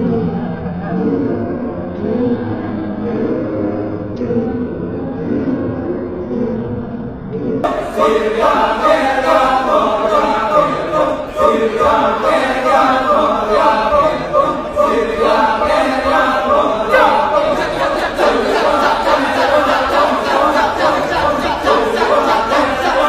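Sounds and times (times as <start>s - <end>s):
group of voices chanting: 7.5s - 23.0s.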